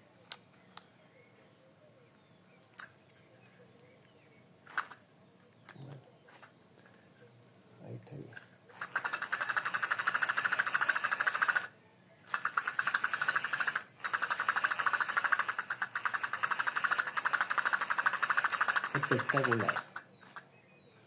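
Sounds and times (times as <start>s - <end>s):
fishing reel clicking: 8.9s - 11.7s, 12.3s - 20.1s.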